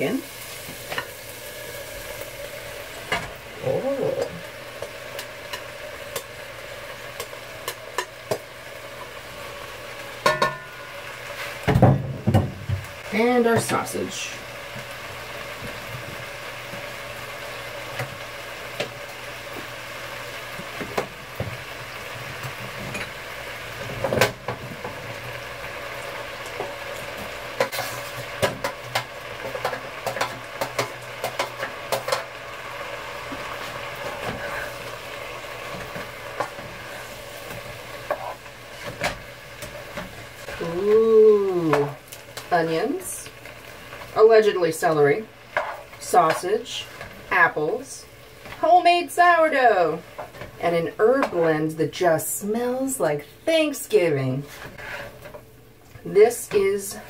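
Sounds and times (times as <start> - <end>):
food sizzling in a pot: 0.0 - 57.0
spoon stirring and scraping: 35.7 - 40.6, 45.5 - 47.1, 54.4 - 55.4.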